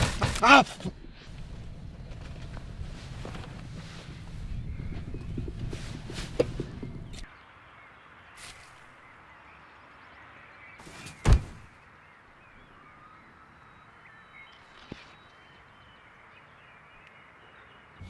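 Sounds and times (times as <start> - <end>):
distant bird chirps: 1.0 - 18.0
loud thump: 11.1 - 11.7.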